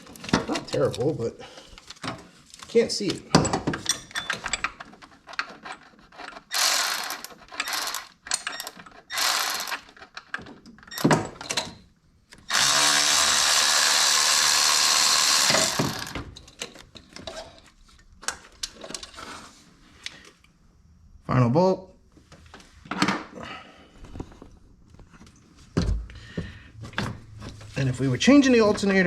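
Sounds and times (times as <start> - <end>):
power tool backing out bolt: 12.4 - 16.4.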